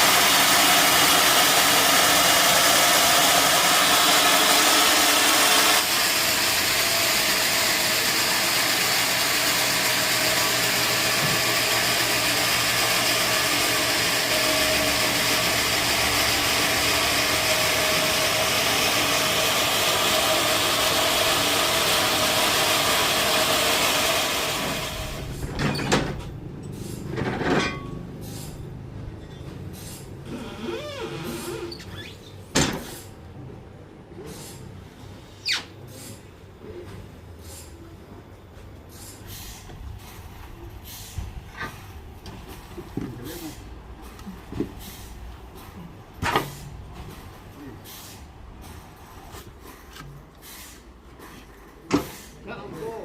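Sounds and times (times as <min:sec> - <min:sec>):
sawmill saw cutting log: 0:00.0 - 0:25.4.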